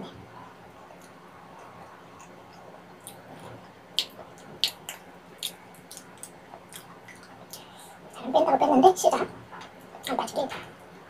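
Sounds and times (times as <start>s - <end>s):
wet chewing mouth clicks: 4.0s - 7.7s.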